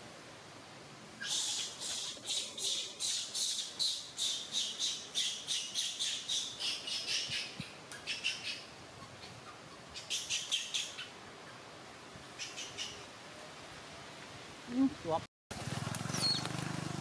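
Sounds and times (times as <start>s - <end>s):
bird chirping: 1.2s - 11.6s, 16.1s - 16.5s.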